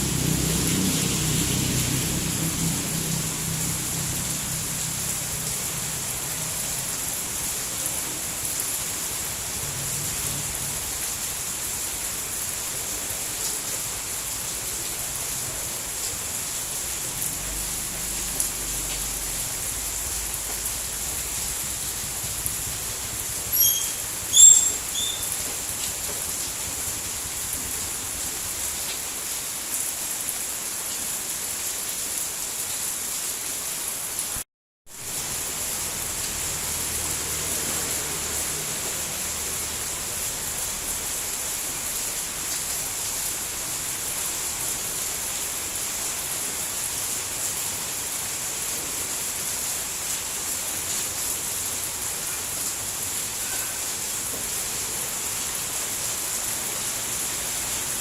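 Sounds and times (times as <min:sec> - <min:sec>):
heavy rainfall hiss: 0:00.0 - 0:58.0
short high chirps: 0:23.5 - 0:25.3.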